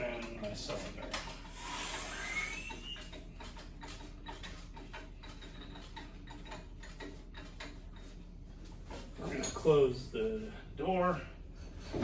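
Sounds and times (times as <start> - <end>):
rising whistle of air: 1.8 - 3.0.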